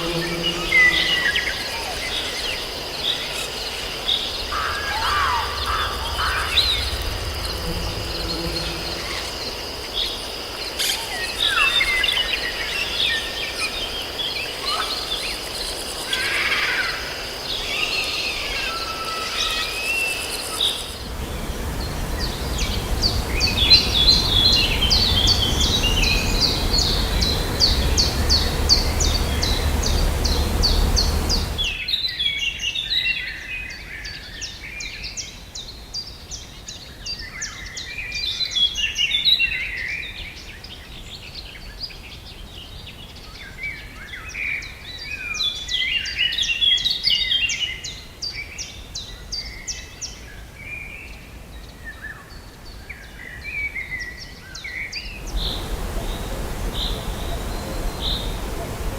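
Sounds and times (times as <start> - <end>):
rushing noise with deep rumble: 4.8 - 10.0, 20.9 - 31.8, 55.2 - 58.9
birds chirping and singing: 21.1 - 31.8, 55.2 - 58.9.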